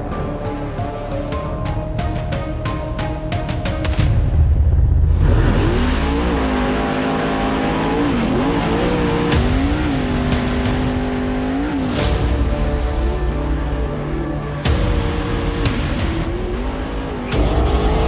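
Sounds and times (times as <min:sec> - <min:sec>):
truck engine revving: 0:04.7 - 0:18.0.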